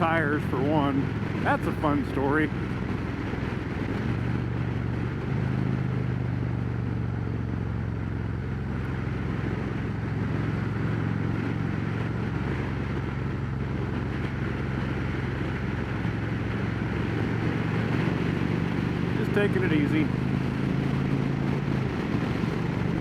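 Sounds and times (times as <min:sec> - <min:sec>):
motorcycle engine cruising: 0:00.0 - 0:23.0
wind noise on microphone: 0:08.8 - 0:23.0.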